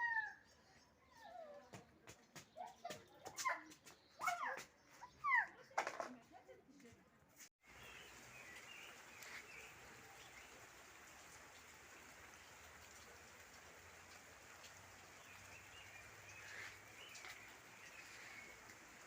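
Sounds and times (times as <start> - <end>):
steady outdoor hiss: 7.6 - 19.0.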